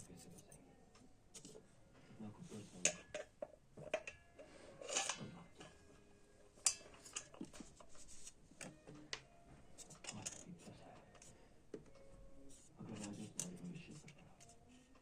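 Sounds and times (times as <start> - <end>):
metal parts clicking and clinking: 4.8 - 5.2.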